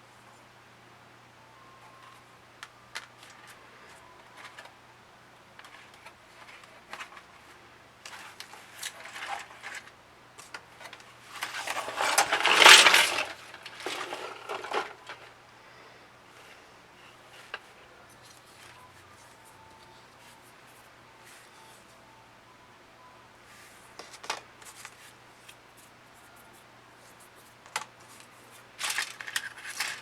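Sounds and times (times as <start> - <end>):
plastic pieces rattling clatter: 8.0 - 9.9, 10.8 - 15.3, 28.8 - 30.0
plastic pieces clicking: 8.0 - 15.3, 28.8 - 30.0.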